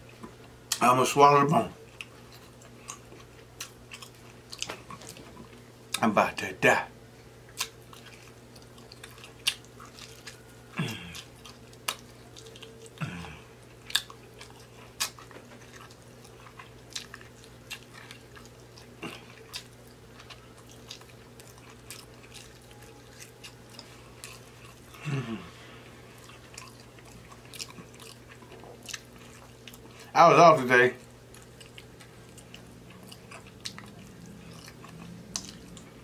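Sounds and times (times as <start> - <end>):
person chewing meat off a bone: 1.8 - 6.0, 7.5 - 30.1, 31.0 - 36.0
person humming: 10.8 - 11.2, 13.0 - 13.5, 25.0 - 25.8.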